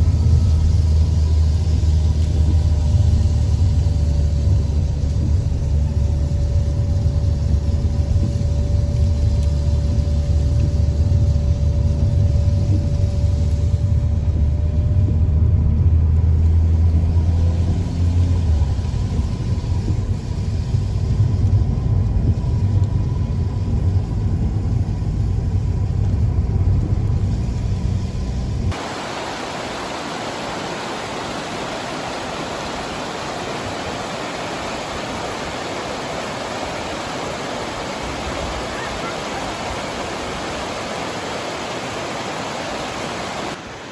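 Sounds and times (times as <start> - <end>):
car driving rumble: 0.0 - 29.1
waterfall rushing: 28.7 - 43.9.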